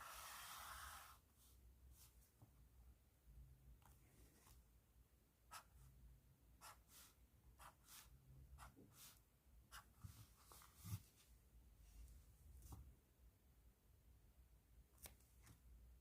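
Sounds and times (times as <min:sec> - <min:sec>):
pen scratching on paper: 0:06.6 - 0:10.0.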